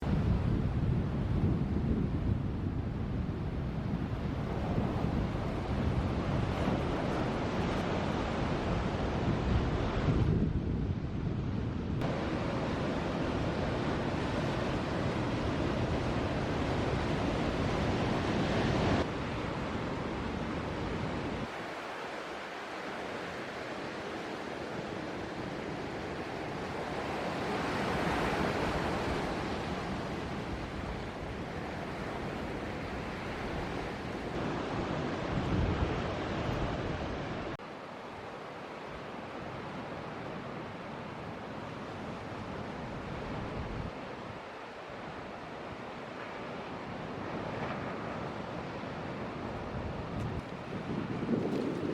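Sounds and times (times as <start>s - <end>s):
wind buffeting microphone: 0.0s - 21.6s, 23.0s - 37.6s, 49.4s - 51.9s
waves breaking and washing: 0.0s - 51.9s.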